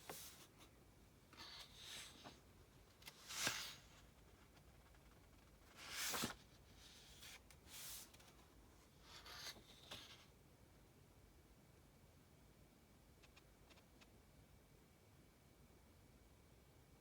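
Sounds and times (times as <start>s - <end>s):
book pages rustling: 0.0s - 0.7s, 1.4s - 10.3s.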